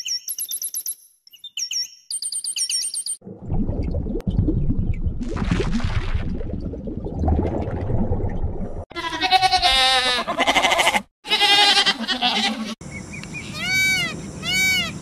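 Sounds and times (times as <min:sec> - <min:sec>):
low rumbling noise: 0:03.2 - 0:05.5
animal bleating: 0:08.9 - 0:12.8, 0:13.5 - 0:15.0.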